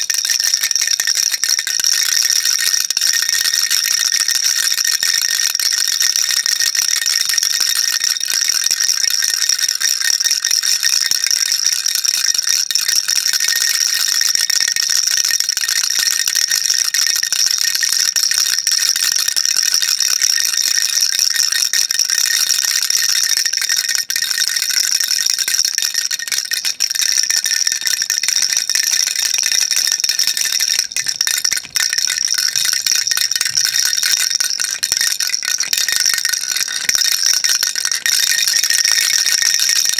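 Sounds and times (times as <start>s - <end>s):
baby rattle shaking: 0.0s - 10.6s, 19.6s - 39.9s.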